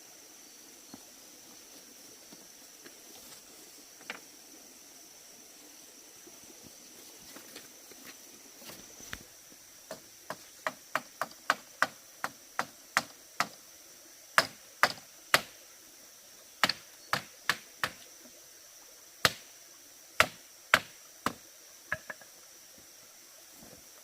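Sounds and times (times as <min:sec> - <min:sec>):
hand tool striking bamboo: 0:09.9 - 0:13.6, 0:14.4 - 0:15.6, 0:16.6 - 0:18.0, 0:19.2 - 0:19.5, 0:20.2 - 0:22.2.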